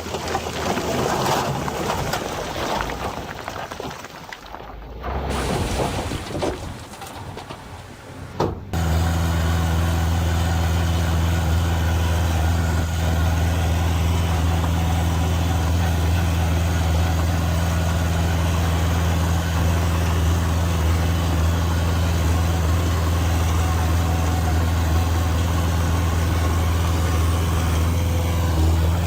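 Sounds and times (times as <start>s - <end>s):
heavy diesel engine running: 8.6s - 29.0s.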